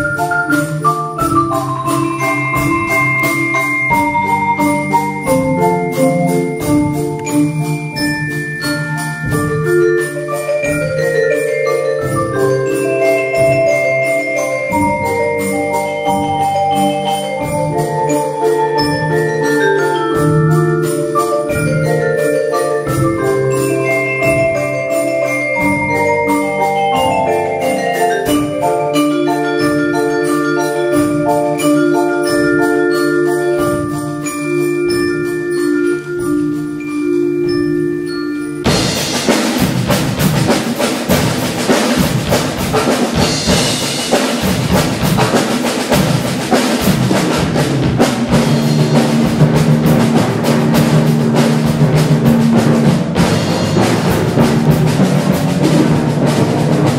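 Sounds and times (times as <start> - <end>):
loud dense drumming: 0.0 - 22.2, 38.7 - 56.9
mallet percussion pattern: 0.0 - 56.9.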